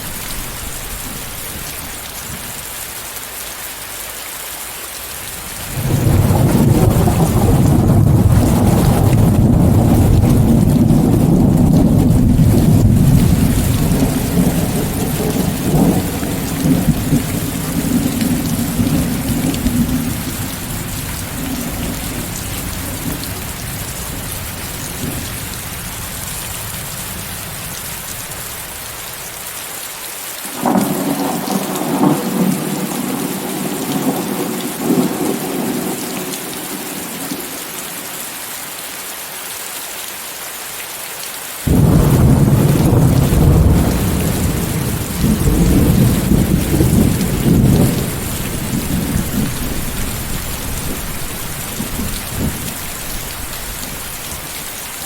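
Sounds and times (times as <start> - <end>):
heavy rain: 0.0 - 55.0
rolling thunder: 5.5 - 28.5, 30.6 - 37.5, 41.7 - 54.7.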